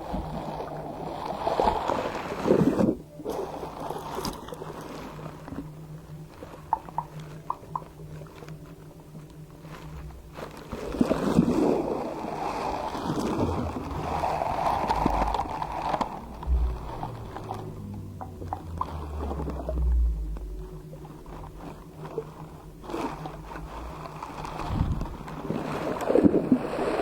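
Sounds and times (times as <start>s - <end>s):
small popping clicks: 6.1s - 10.5s
slime squelching by hand: 6.4s - 26.1s.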